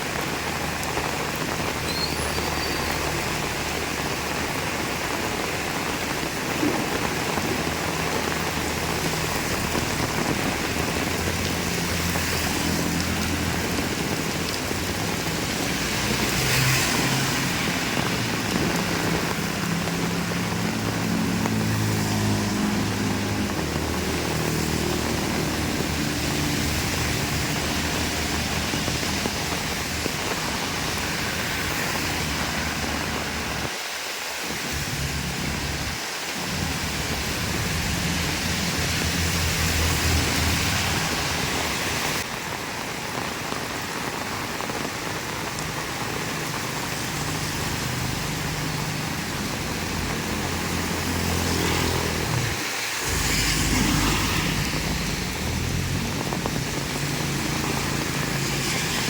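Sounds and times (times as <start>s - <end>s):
heavy rain pouring: 0.0s - 59.0s
vehicle engine rumble: 34.6s - 59.0s.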